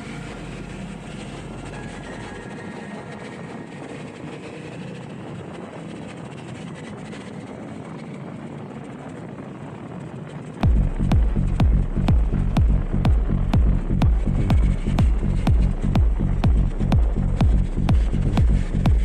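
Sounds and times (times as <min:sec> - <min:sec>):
wind noise: 0:00.0 - 0:19.0
motorcycle engine: 0:10.6 - 0:19.0.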